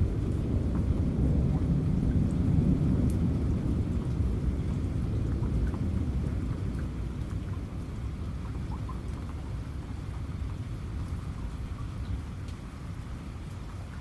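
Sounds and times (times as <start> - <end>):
rolling thunder: 0.0 - 8.7
raindrop ticks: 0.0 - 14.0
steady rain: 0.0 - 14.0.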